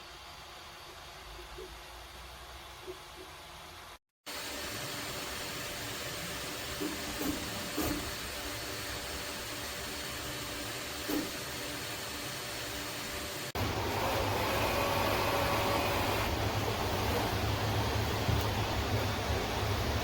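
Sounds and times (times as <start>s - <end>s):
printer fan hiss: 4.3s - 20.0s.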